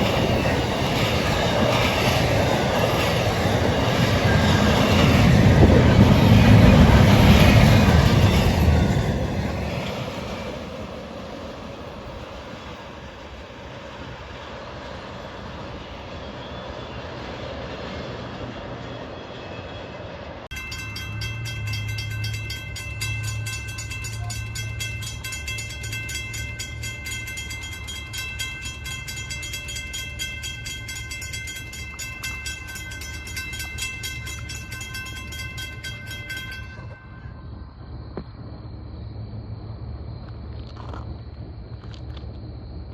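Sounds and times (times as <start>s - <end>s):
crossing bell ringing rapidly: 0.0s - 12.8s, 20.5s - 37.6s
train passing: 0.0s - 42.0s
low locomotive drone: 0.0s - 42.9s.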